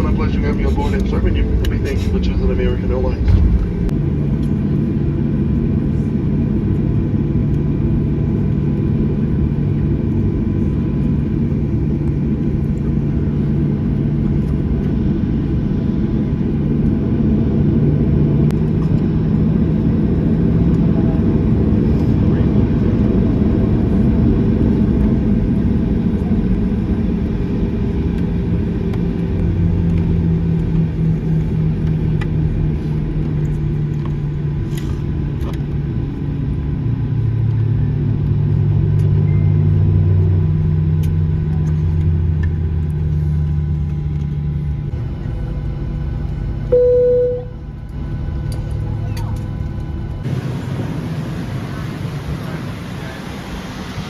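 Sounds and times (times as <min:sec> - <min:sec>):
aircraft engines low rumble: 0:00.0 - 0:54.0
brief single tone: 0:39.2 - 0:39.6, 0:46.7 - 0:47.7.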